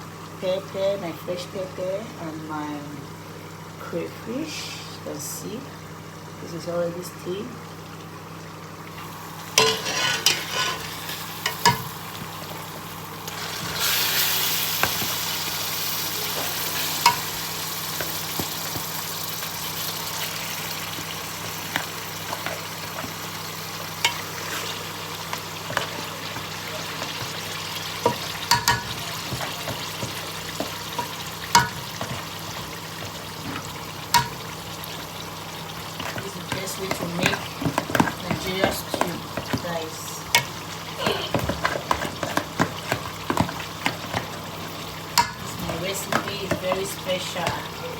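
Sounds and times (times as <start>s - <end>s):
food sizzling in hot oil: 7.3s - 47.9s
spoon clinking against pot: 28.0s - 32.2s.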